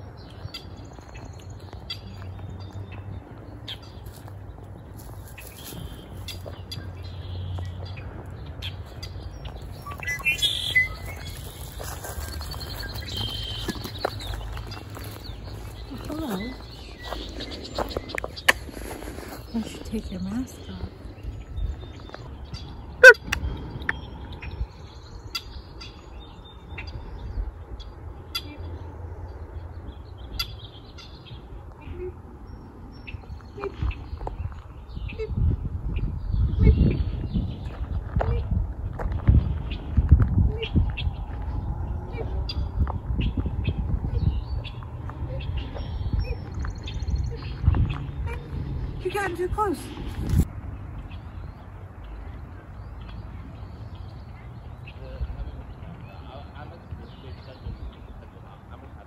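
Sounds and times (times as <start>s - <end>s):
steady low rumble: 0.0s - 49.2s
small birds chirping: 0.0s - 59.0s
birds giving sharp chip calls: 8.6s - 21.2s, 22.6s - 23.5s.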